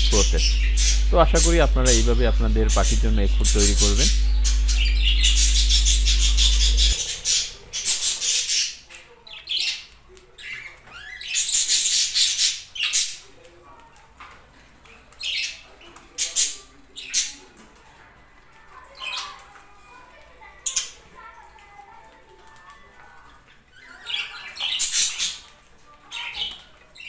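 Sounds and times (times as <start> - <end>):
steady low hum: 0.0 - 8.0
budgerigars chattering and squawking: 0.0 - 9.8.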